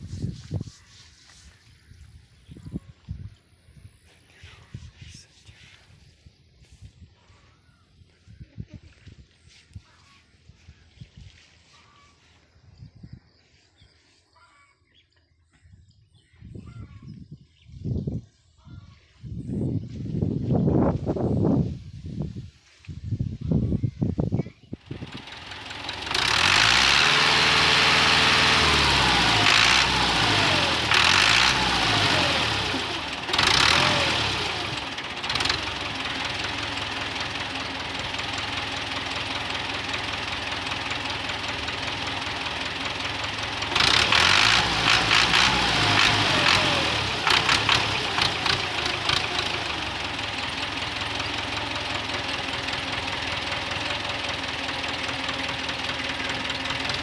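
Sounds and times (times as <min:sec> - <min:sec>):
tractor engine idling: 0:24.7 - 0:57.0.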